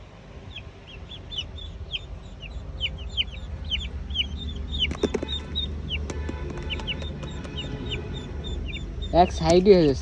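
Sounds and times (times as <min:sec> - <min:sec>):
steady low rumble: 0:00.0 - 0:10.0
chickens cheeping: 0:00.4 - 0:09.9.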